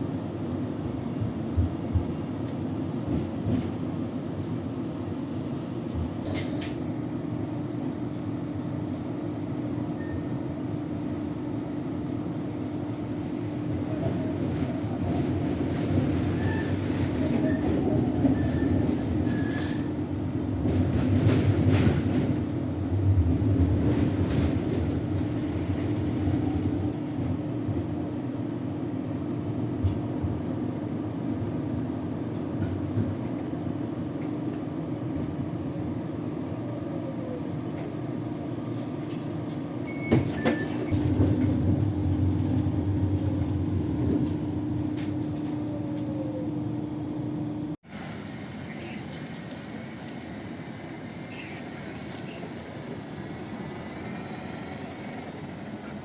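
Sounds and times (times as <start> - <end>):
tram wheels rumbling on rails: 0.1 - 46.8, 47.8 - 56.0.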